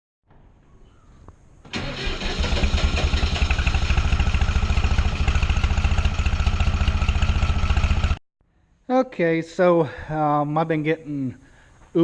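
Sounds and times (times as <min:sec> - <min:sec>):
tractor diesel engine running: 0:01.7 - 0:08.2.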